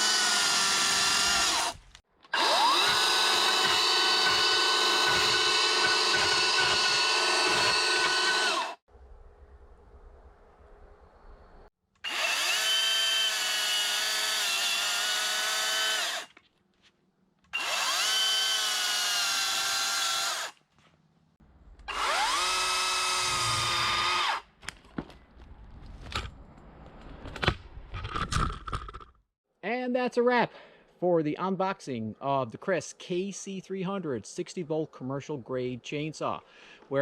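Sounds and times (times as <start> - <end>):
chainsaw whining: 0.0 - 8.8, 12.0 - 16.3.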